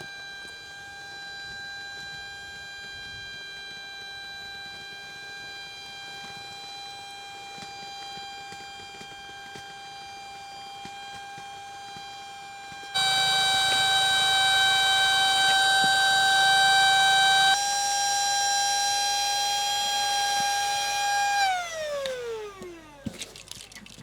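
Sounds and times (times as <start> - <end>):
electric air pump whining: 0.1 - 23.4.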